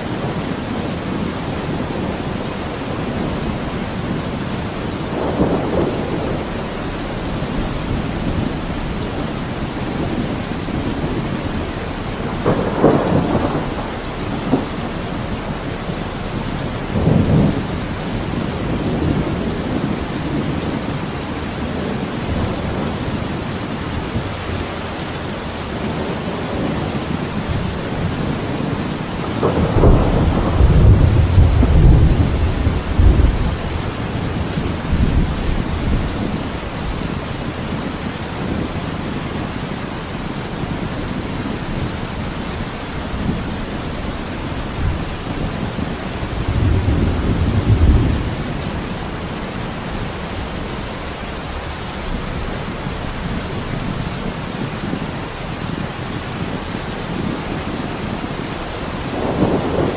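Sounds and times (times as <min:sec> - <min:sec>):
heavy rain: 0:00.0 - 0:59.9
thunder rumbling: 0:00.0 - 0:59.9.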